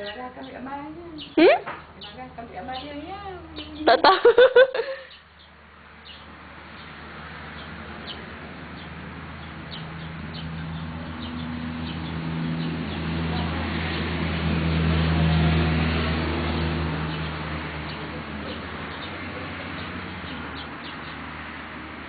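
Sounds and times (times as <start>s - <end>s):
small birds chirping: 0.0s - 14.1s, 16.4s - 22.0s.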